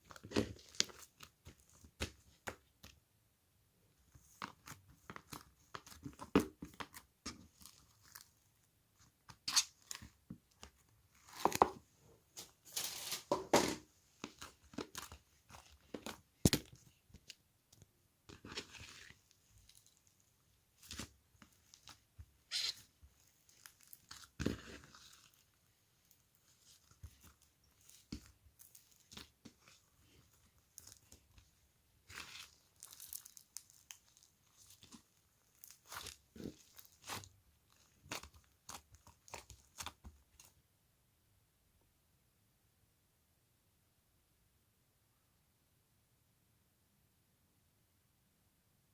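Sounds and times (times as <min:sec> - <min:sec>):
crisp crunching and chewing: 0:32.1 - 0:40.5.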